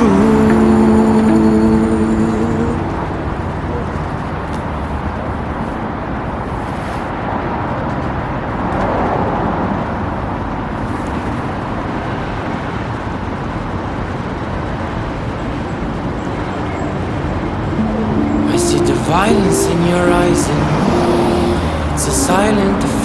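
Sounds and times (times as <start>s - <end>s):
tram rumbling: 16.5s - 23.0s.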